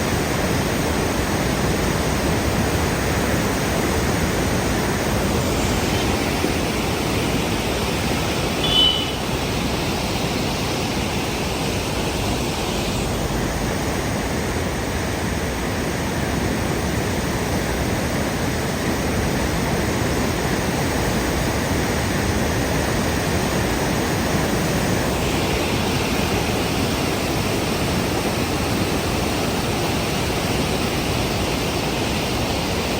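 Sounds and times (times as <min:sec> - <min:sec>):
river water roaring: 0:00.0 - 0:32.9
high-pitched tone: 0:08.6 - 0:09.2.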